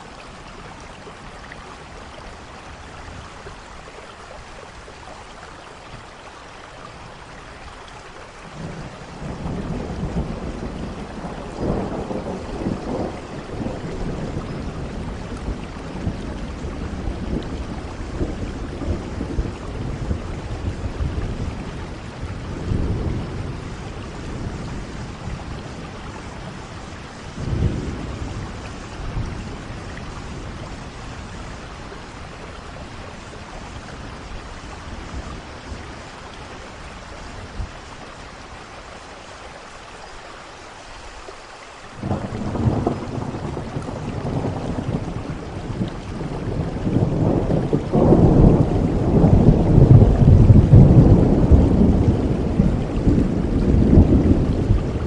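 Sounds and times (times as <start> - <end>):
steady rain falling: 0.0 - 55.0
thunder rumbling: 8.5 - 38.3, 42.0 - 55.0.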